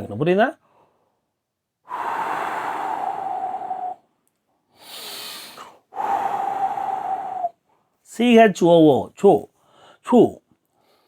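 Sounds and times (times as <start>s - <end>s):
soft breath in: 0.6s - 4.1s, 4.7s - 7.9s
blown exhale through lips: 1.9s - 4.1s, 4.7s - 7.6s.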